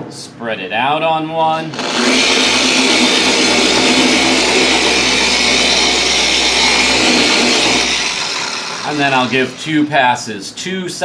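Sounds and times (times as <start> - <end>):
car polisher running: 1.7 - 9.9.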